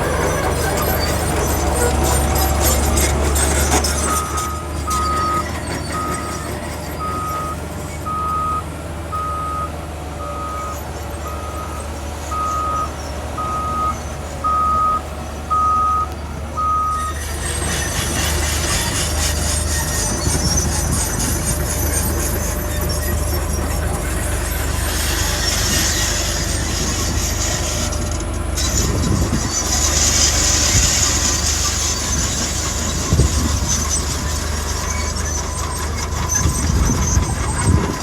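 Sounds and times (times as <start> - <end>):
engine rumble: 0.0 - 38.0
reversing alarm beeping: 4.0 - 17.3.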